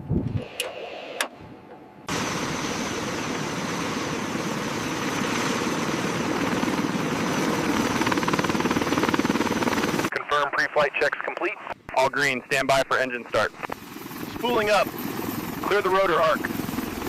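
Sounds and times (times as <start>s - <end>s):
helicopter engines and rotor: 2.1s - 10.3s, 13.2s - 17.0s.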